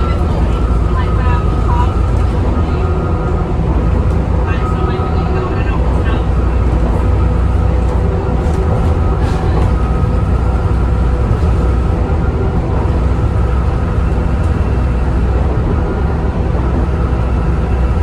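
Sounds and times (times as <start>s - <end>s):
bus diesel engine drone: 0.0s - 18.0s.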